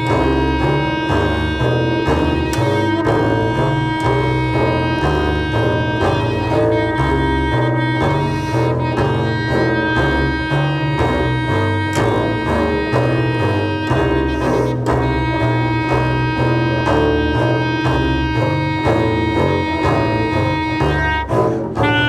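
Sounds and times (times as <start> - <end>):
double bass repeated low notes: 0.0 - 22.0.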